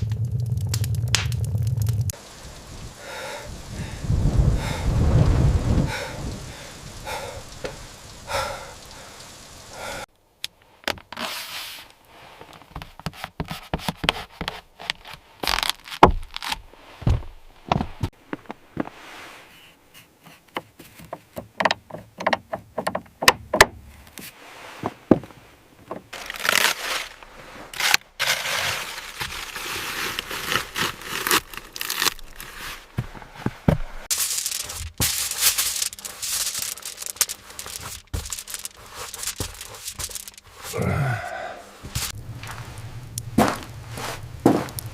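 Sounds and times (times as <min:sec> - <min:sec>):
rain: 0:00.0 - 0:10.1, 0:26.1 - 0:32.4, 0:34.0 - 0:44.9.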